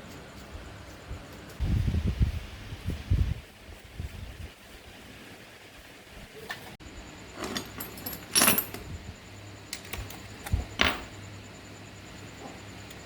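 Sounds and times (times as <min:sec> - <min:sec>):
metallic clinks and rattles: 0:07.4 - 0:08.9, 0:09.7 - 0:11.2.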